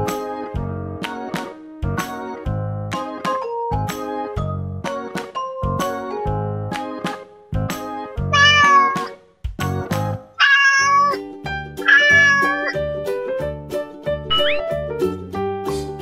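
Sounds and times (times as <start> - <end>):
children's background music: 0.0 - 16.0
cat meowing: 8.3 - 9.1, 10.4 - 11.2, 11.8 - 12.8.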